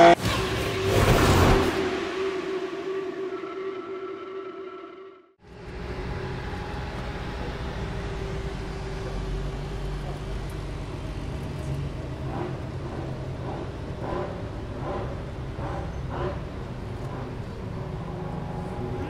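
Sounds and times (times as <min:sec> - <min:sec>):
car engine idling: 0:05.4 - 0:19.0.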